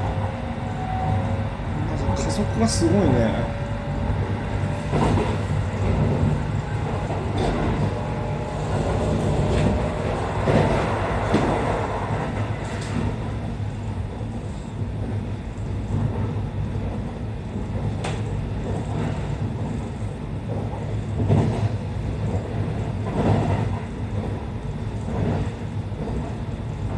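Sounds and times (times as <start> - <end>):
electric train running rumble: 0.0 - 26.9.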